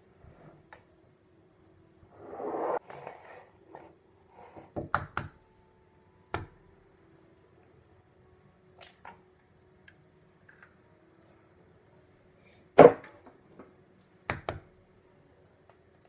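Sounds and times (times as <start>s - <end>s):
faint steady hum: 5.2s - 16.0s.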